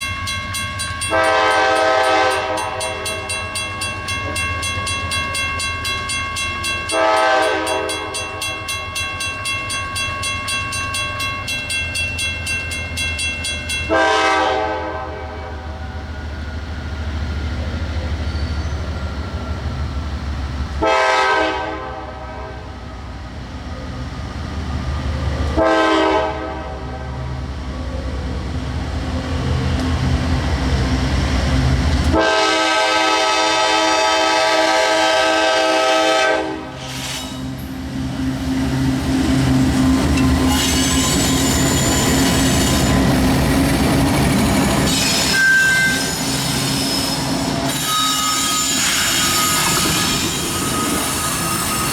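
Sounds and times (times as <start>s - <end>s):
freight train rumbling past: 0.0s - 51.9s
locomotive air horn blasts: 1.1s - 3.4s, 6.9s - 8.5s, 13.9s - 15.7s, 20.8s - 22.8s, 25.5s - 27.2s, 32.1s - 36.9s.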